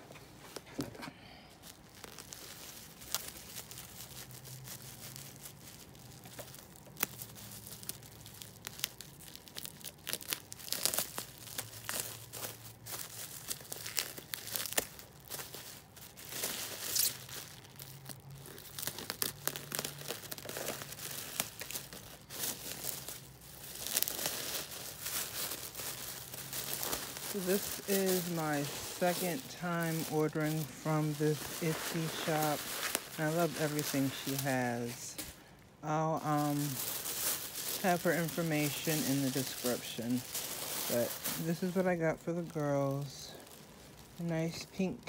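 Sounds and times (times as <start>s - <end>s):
tape tearing: 0.1s - 35.4s
packaging crinkling: 0.1s - 45.0s.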